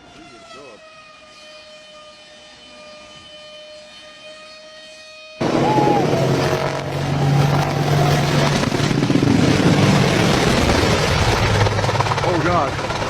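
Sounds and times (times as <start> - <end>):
helicopter engine and rotor: 5.4 - 13.0.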